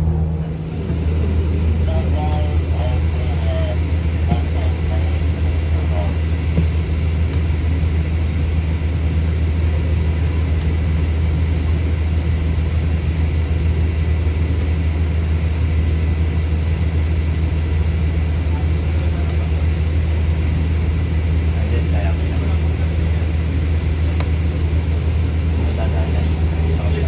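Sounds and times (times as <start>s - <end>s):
low engine rumble: 0.0s - 27.0s
faint high steady tone: 25.6s - 27.0s.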